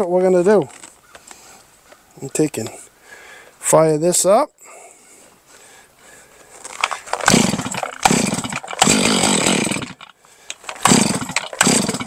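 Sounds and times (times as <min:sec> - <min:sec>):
chainsaw starting and sputtering: 0:06.7 - 0:12.0.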